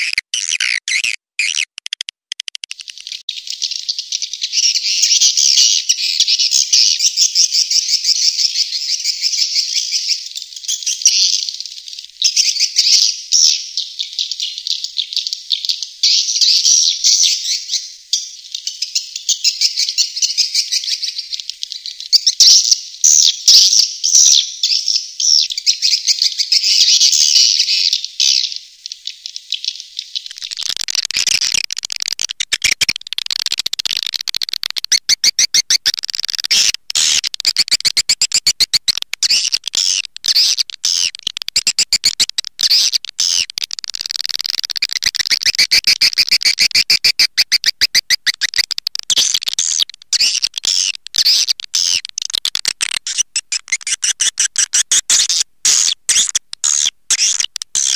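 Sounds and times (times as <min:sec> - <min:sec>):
high rapid bird chirping: 0:00.0 - 0:17.8, 0:19.4 - 0:57.9
fast rattling clicks: 0:00.3 - 0:02.9, 0:30.3 - 0:46.8, 0:47.4 - 0:55.3.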